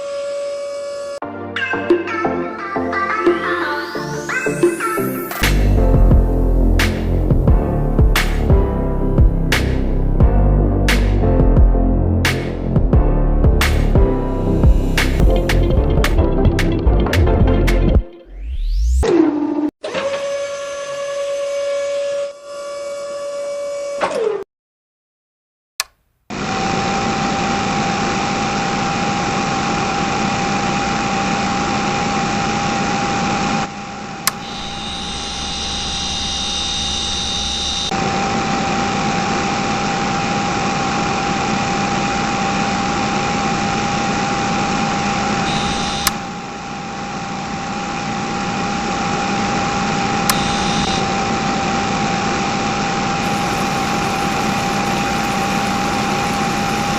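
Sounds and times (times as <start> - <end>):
small electric motor whining: 26.5 - 56.9.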